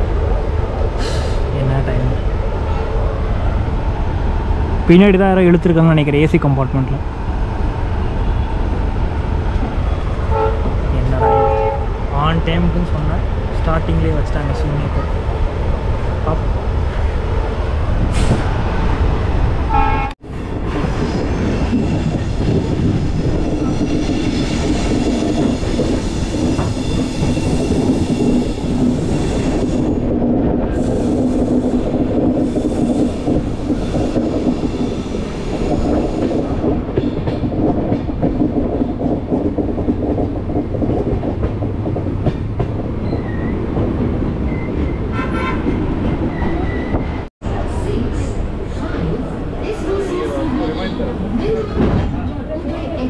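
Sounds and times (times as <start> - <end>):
train wheels rumbling on track: 0.0 - 53.0.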